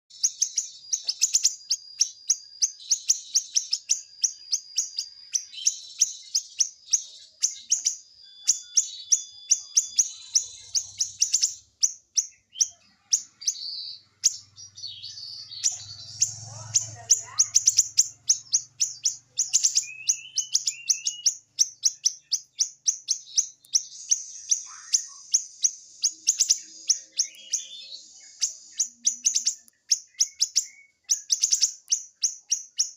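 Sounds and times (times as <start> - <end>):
bird singing high trilling song: 0.0 - 32.9.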